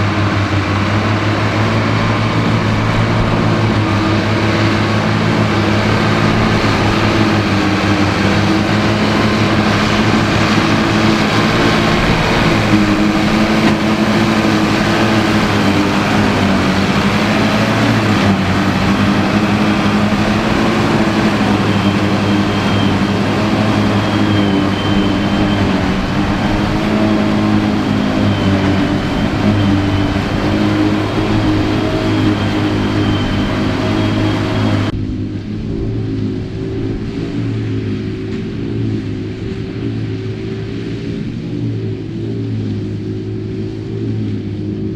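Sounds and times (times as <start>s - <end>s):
faint high whine: 0.0s - 44.7s
tractor diesel engine running: 0.0s - 44.9s.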